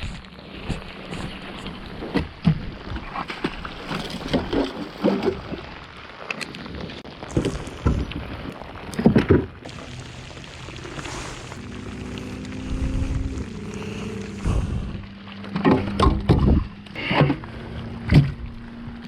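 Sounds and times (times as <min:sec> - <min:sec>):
knocks and splashes on hull: 0:00.0 - 0:19.0
heavy rain hissing on water: 0:05.0 - 0:16.0.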